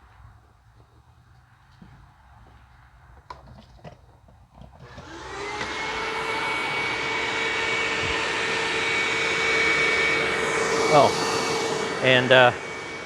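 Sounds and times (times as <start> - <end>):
vacuum cleaner motor whine: 4.8 - 13.0.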